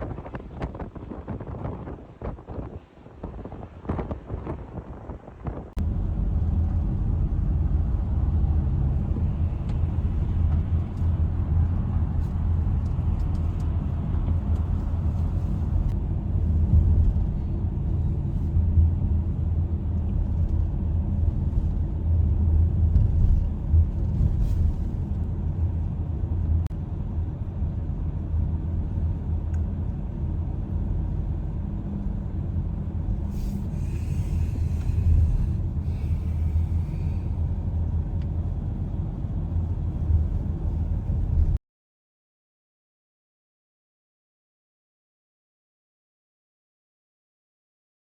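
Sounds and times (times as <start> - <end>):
car road and engine rumble: 0.0 - 41.6.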